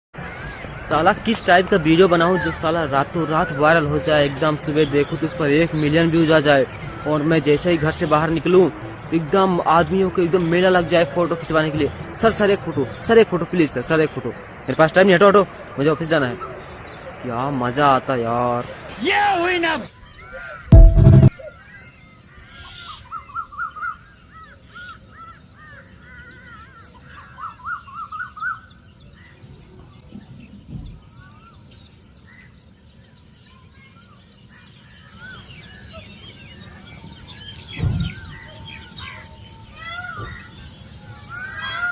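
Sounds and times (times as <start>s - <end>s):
birds chirping: 0.2s - 41.9s
dull low thump: 20.7s - 21.3s.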